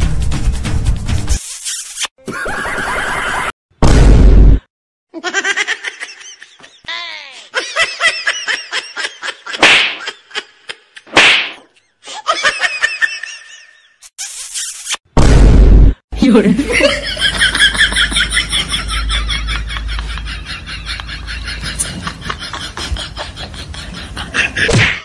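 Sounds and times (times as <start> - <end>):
comedy laughs and giggles: 2.2 - 3.5, 5.1 - 11.1, 12.0 - 14.0, 16.4 - 25.0.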